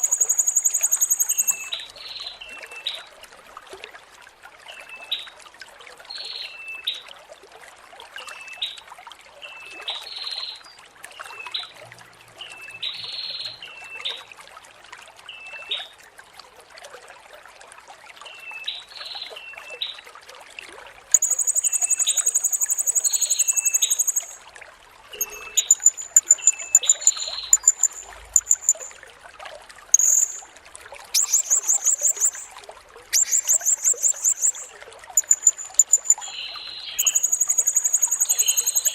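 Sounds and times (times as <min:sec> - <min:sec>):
parrot high rattling trills: 0:00.0 - 0:01.7, 0:21.2 - 0:24.4, 0:25.2 - 0:28.9, 0:30.0 - 0:30.5, 0:31.2 - 0:32.5, 0:33.1 - 0:38.9
water trickling: 0:00.0 - 0:13.6, 0:14.4 - 0:38.9.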